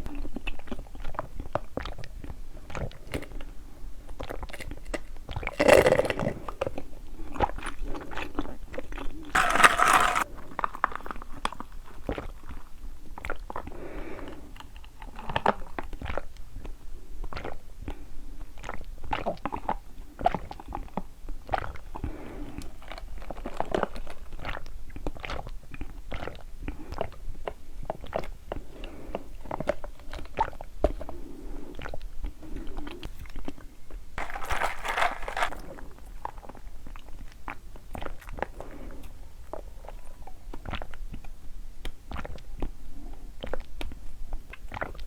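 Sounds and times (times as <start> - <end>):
chewing tapioca pearls: 0.1 - 13.7, 14.5 - 18.0, 31.7 - 38.6, 43.4 - 45.0.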